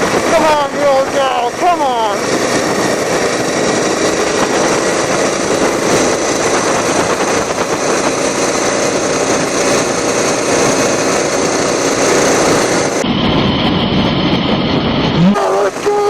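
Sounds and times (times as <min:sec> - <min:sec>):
lawn mower engine at full throttle: 0:00.0 - 0:16.0.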